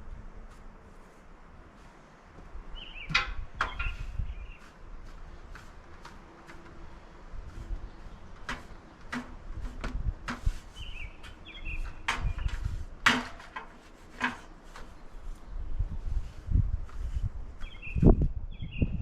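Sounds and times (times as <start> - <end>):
sharp knocks and clunks: 2.4 - 4.2, 8.3 - 10.6, 11.2 - 14.9.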